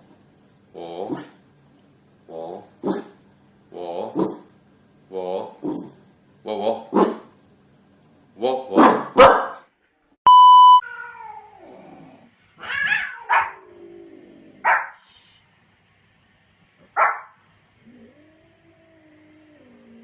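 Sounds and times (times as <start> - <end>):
dog barking: 2.8 - 3.2, 7.0 - 7.3, 8.7 - 9.7, 13.0 - 13.6, 14.6 - 15.0, 17.0 - 17.4
one-tone beep: 10.3 - 10.8.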